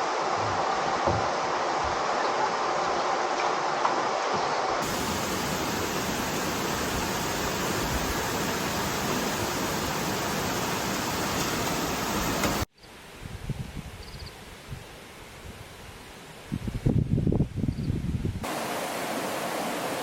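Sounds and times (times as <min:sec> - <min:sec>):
steady rushing noise: 0:04.8 - 0:12.7.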